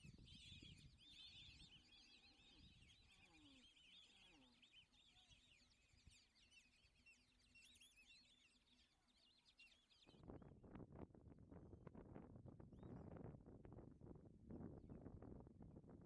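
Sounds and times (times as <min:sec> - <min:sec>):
wind rumble on microphone: 0:00.0 - 0:01.8, 0:10.1 - 0:16.0.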